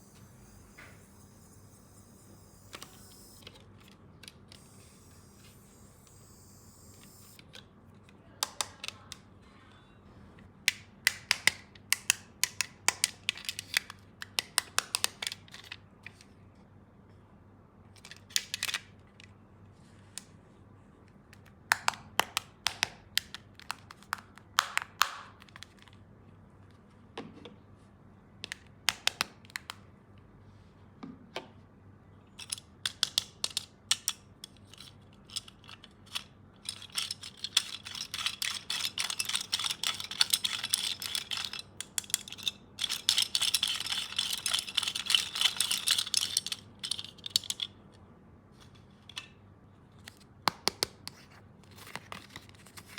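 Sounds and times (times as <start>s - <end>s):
plastic toys clicking and tapping: 8.4s - 9.3s, 10.7s - 16.2s, 21.3s - 26.0s, 32.4s - 47.8s.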